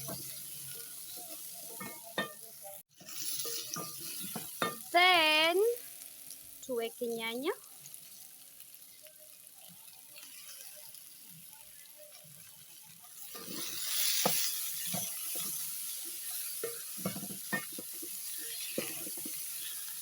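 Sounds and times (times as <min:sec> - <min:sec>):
spoon knocking and scraping pan: 0:00.0 - 0:00.4, 0:01.2 - 0:02.5, 0:03.4 - 0:04.9, 0:13.3 - 0:19.8
vegetables sizzling in a pan: 0:00.0 - 0:20.0.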